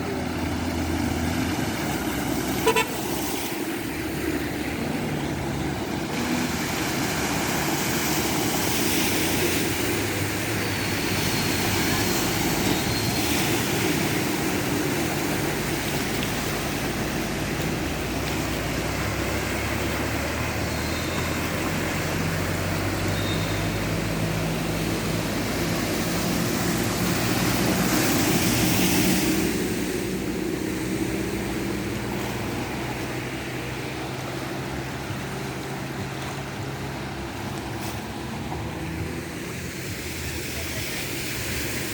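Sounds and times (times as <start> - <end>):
car engines running: 0.0 - 41.9
tyres through water: 0.0 - 41.9
car horn beep: 2.6 - 3.1, 23.1 - 23.8.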